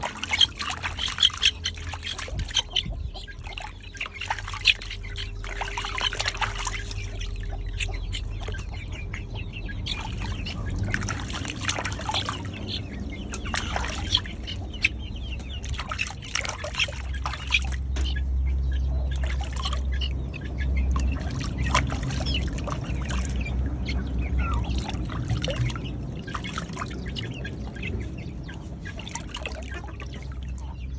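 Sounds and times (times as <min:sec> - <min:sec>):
water splashing and trickling: 0:00.0 - 0:30.9.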